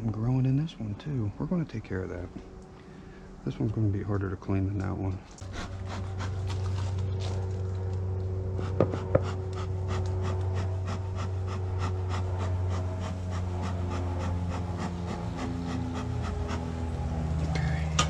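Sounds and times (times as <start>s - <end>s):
honeybees buzzing: 4.5s - 18.0s.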